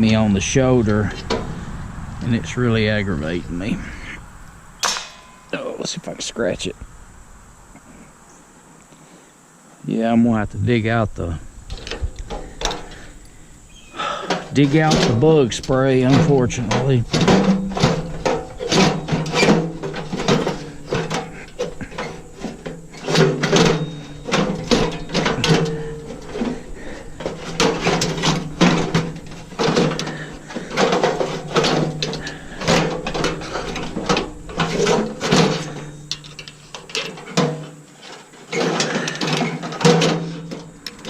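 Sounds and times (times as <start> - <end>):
metal parts and tools clinking: 4.8 - 5.6, 14.0 - 41.0.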